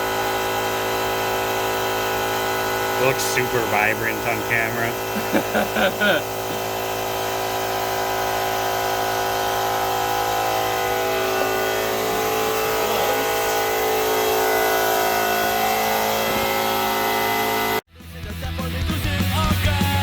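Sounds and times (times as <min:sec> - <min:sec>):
air compressor motor humming: 0:00.0 - 0:17.8.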